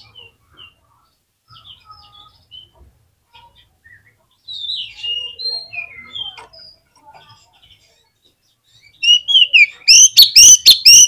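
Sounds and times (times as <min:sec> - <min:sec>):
soft bird calls: 0:00.0 - 0:11.0
bird singing whistled notes: 0:08.8 - 0:11.0.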